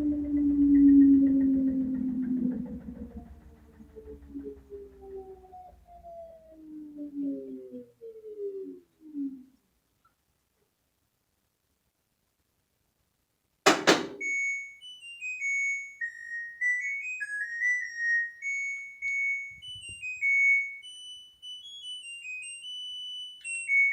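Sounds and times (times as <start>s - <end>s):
loud click: 13.7s - 14.2s
washing machine beeping melody: 13.7s - 23.9s.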